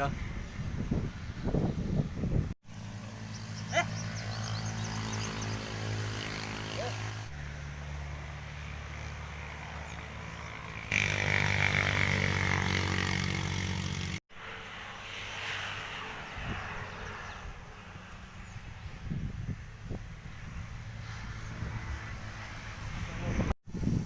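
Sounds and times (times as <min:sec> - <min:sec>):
engine drone: 0:02.7 - 0:18.8.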